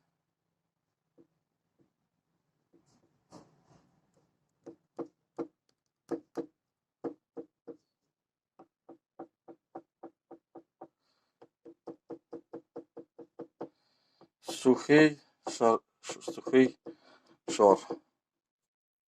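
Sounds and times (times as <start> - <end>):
ball joint creaking and knocking: 8.6 - 18.0.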